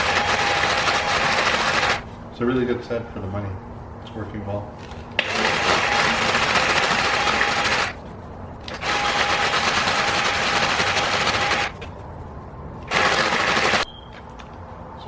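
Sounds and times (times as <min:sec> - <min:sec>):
die grinder grinding metal: 0:00.0 - 0:02.0, 0:05.2 - 0:08.0, 0:08.7 - 0:11.8, 0:12.9 - 0:13.8.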